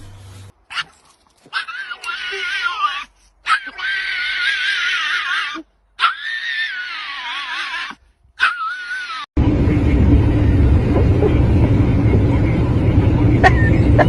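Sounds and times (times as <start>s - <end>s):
dog howling: 1.6s - 9.3s
loud steady rumbling: 9.4s - 14.0s.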